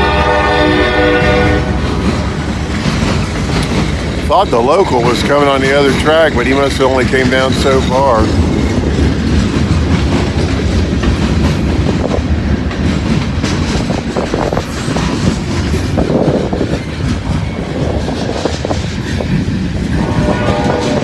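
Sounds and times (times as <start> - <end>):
freight train rumbling past: 0.0 - 21.0
wheels clicking over rail joints: 1.3 - 21.0
wind on microphone: 7.1 - 21.0.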